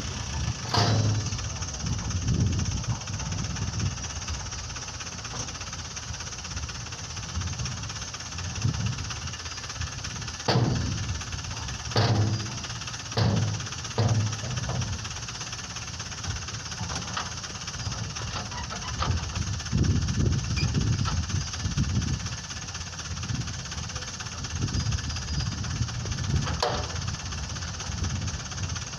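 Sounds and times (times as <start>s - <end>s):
truck engine running: 0.0s - 28.9s
sharp knocks: 0.7s - 1.3s, 10.5s - 11.0s, 11.9s - 12.6s, 13.2s - 14.9s.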